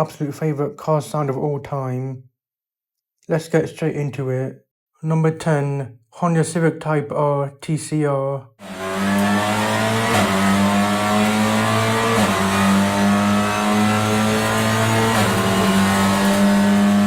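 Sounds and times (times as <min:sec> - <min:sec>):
race car engine accelerating: 0:08.6 - 0:17.0.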